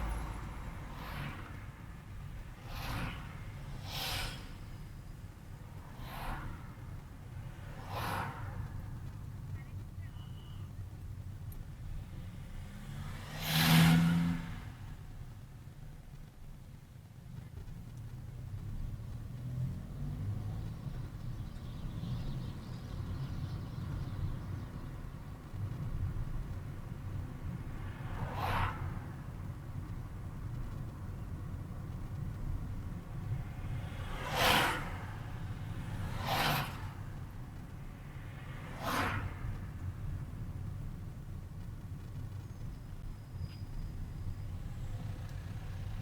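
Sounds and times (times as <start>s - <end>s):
car engine and road rumble: 0.0s - 46.0s
hiss: 2.6s - 4.8s.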